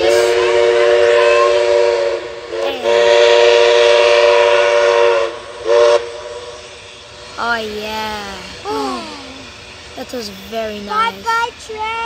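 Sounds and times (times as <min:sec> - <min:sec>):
train chime whistle: 0:00.0 - 0:06.6.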